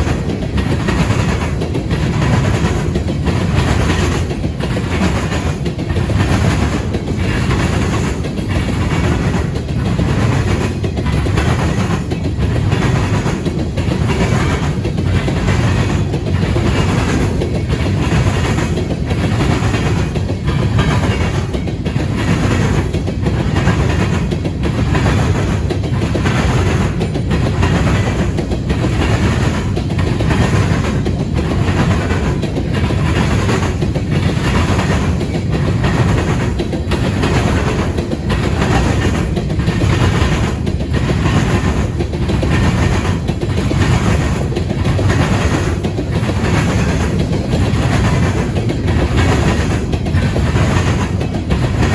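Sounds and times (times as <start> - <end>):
steel train wheels clattering: 0.0 - 51.9.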